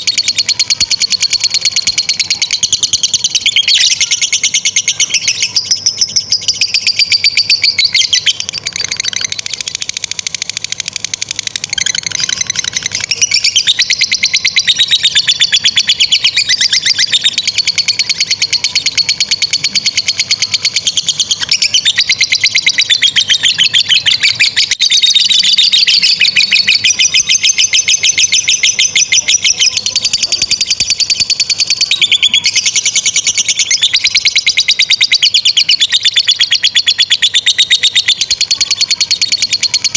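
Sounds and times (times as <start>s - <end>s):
lovebirds chattering trills: 0.0s - 39.9s.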